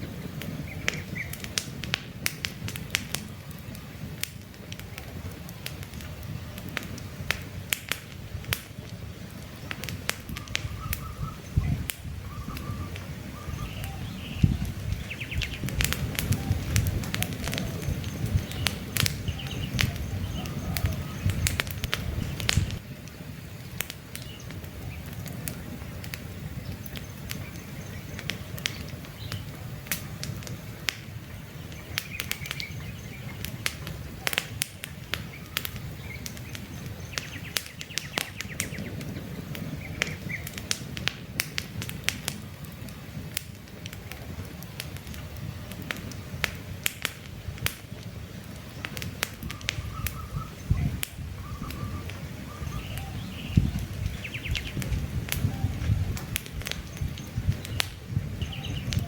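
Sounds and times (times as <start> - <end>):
campfire crackling and popping: 0.0 - 59.0
faint bird chirps: 10.4 - 15.6, 49.4 - 54.8, 56.8 - 59.0.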